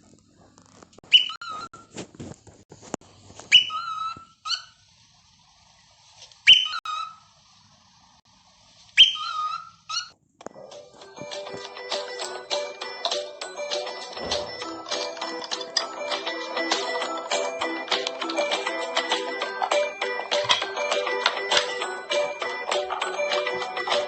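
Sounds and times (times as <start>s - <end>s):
parrot whistling: 1.1s - 1.8s, 3.5s - 4.7s, 6.4s - 7.2s, 9.0s - 10.1s.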